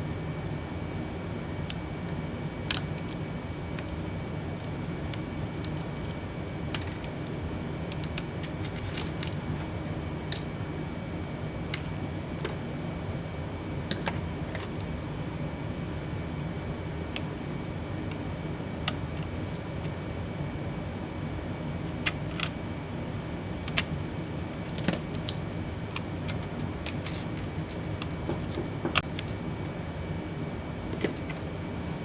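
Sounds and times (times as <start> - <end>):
background hum and hiss: 0.0 - 32.0.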